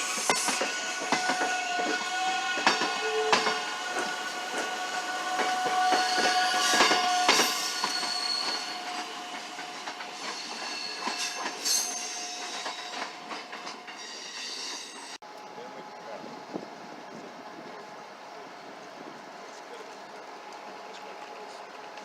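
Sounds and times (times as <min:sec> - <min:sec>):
metallic squeal of train: 0:00.0 - 0:15.2
train wheels clicking over rail joints: 0:00.0 - 0:15.2.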